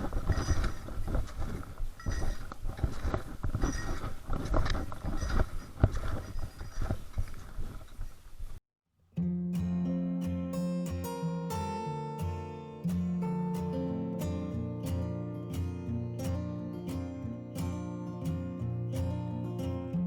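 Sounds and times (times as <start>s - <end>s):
footsteps of hiker walking: 0.0s - 8.2s.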